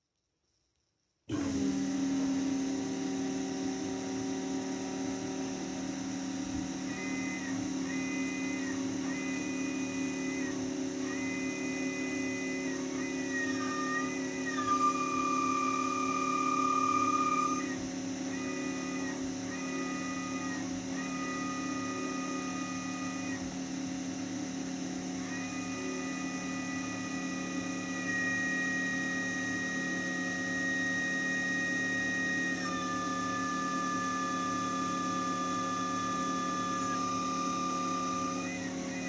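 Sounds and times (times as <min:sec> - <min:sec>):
machine hum: 0:01.3 - 0:39.0
high-pitched whine: 0:07.0 - 0:17.8.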